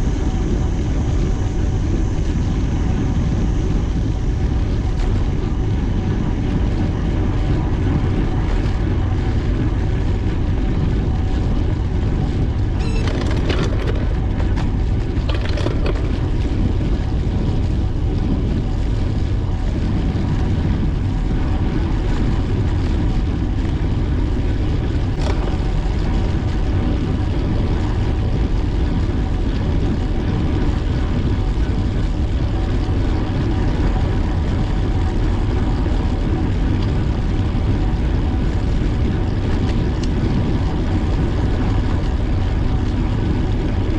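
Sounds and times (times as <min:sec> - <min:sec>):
wind rushing over microphone: 0:00.0 - 0:43.9
bicycle clicks and rattles: 0:11.6 - 0:19.0, 0:24.4 - 0:43.9.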